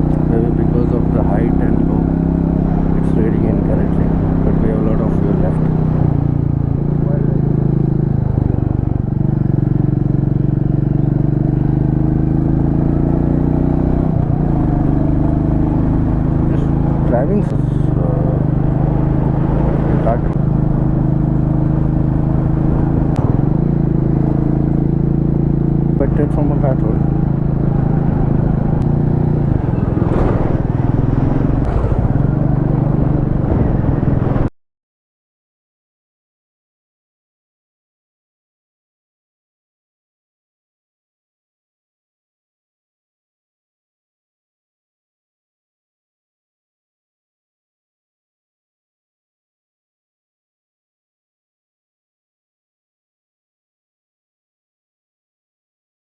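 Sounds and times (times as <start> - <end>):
motorcycle engine running: 0.0 - 34.5
wind rumbling on microphone: 27.1 - 34.5.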